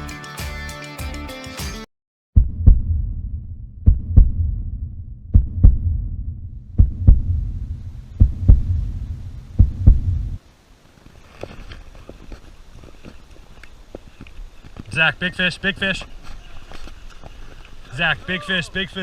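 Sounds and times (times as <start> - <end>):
heartbeat double thumps: 2.4 - 10.4
low hum: 2.4 - 10.4
faint outdoor background: 2.4 - 19.0.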